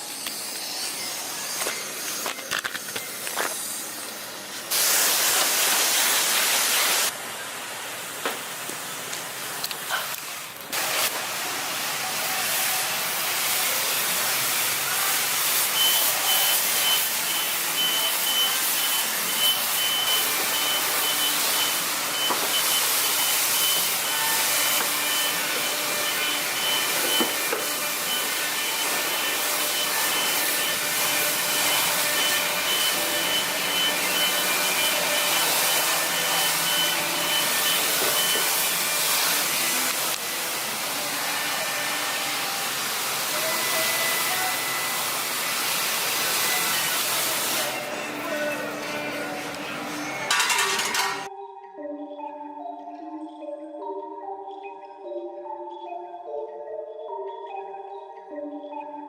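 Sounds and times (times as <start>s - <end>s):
pressure washer spraying water: 3.5s - 7.2s, 8.4s - 47.9s
thin high whine: 14.8s - 42.8s.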